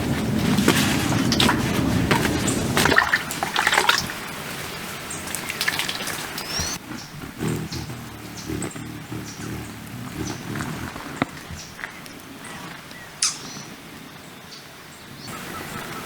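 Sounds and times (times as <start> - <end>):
hummingbird wings whirring: 0.0 - 13.2
hummingbird chips and squeaks: 4.0 - 13.7.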